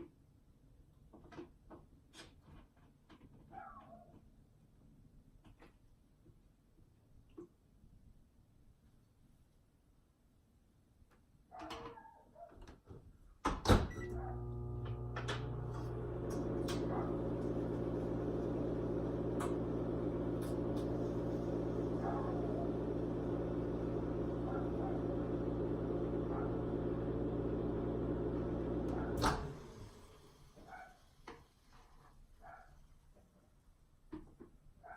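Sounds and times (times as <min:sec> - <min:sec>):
microwave running hum: 0:13.9 - 0:30.3.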